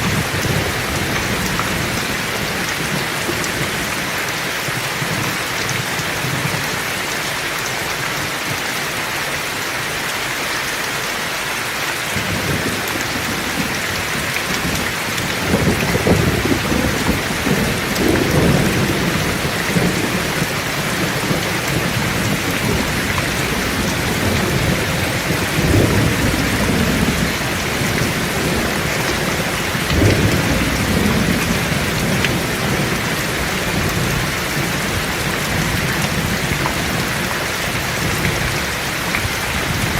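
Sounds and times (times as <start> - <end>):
thunder rumbling: 0.0 - 4.1, 12.2 - 39.9
heavy rain falling: 0.0 - 39.9.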